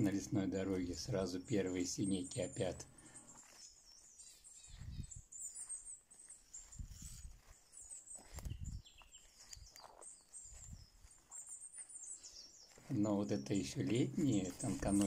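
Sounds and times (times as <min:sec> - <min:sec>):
small birds chirping: 0:00.0 - 0:15.0
soft low thumps: 0:04.6 - 0:05.4, 0:10.4 - 0:11.2.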